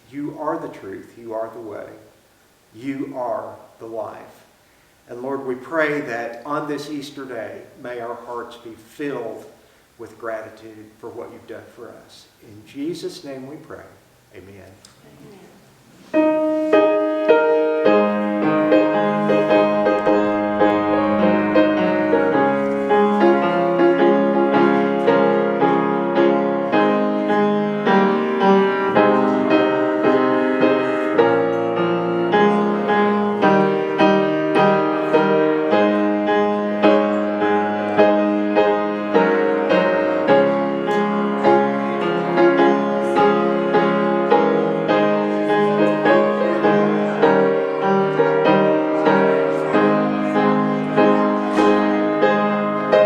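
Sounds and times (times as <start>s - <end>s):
piano playing: 0.0s - 2.0s, 2.8s - 4.4s, 16.0s - 53.0s.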